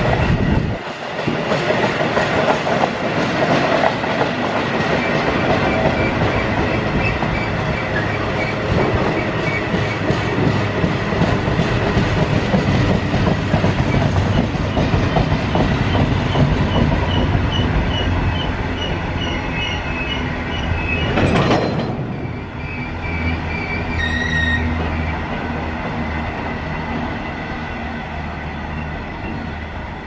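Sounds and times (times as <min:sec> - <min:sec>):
train wheels clattering over joints: 0:00.0 - 0:22.5
low train rumble: 0:00.0 - 0:30.0
high wheel squeal: 0:16.3 - 0:25.3.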